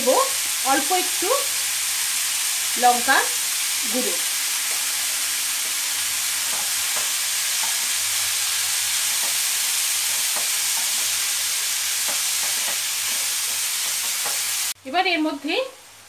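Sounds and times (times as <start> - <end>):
vegetables sizzling in a frying pan: 0.0 - 16.0
spatula scraping and tapping: 6.4 - 8.0, 9.0 - 11.2, 12.0 - 14.5.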